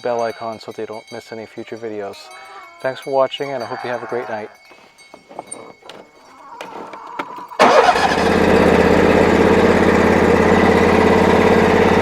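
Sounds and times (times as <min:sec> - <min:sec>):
engine starting and running: 0:07.6 - 0:12.0.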